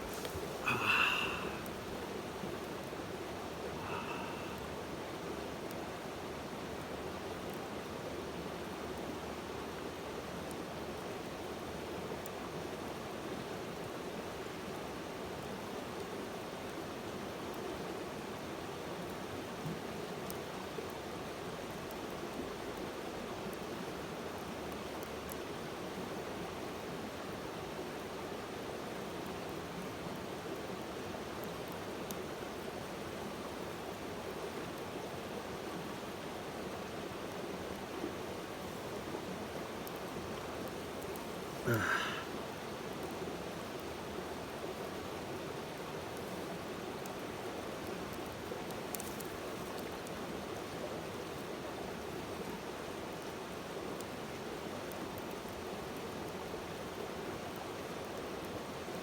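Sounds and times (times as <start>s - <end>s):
flowing water rushing: 0.0s - 5.0s.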